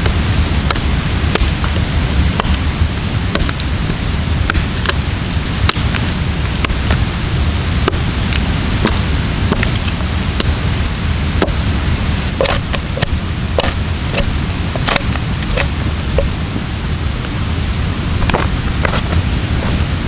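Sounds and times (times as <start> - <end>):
steady rushing noise: 0.0 - 20.0
axe chopping log: 0.6 - 1.8, 2.4 - 2.7, 3.3 - 3.7, 4.5 - 5.0, 5.6 - 7.1, 7.8 - 10.7, 11.4 - 11.6, 12.4 - 16.3.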